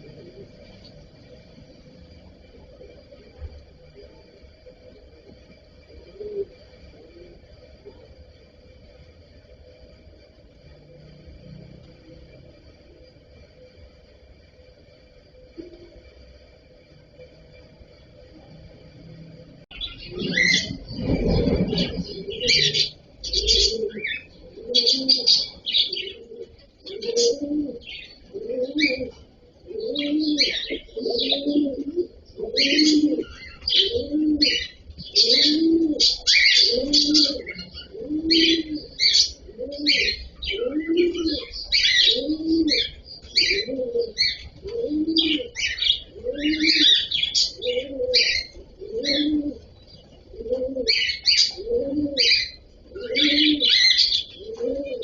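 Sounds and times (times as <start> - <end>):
low rising and falling bird call: 18.2 - 49.7
cockatiels chirping: 50.9 - 54.4.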